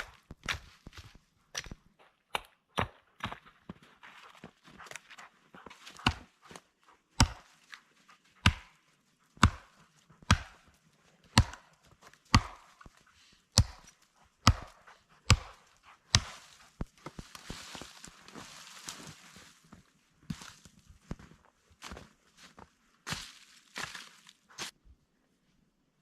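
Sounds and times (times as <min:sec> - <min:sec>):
axe chopping wood: 0:01.6 - 0:03.4, 0:05.9 - 0:06.3, 0:07.2 - 0:07.5, 0:08.4 - 0:08.8, 0:09.4 - 0:10.7, 0:11.3 - 0:11.7, 0:12.3 - 0:17.6.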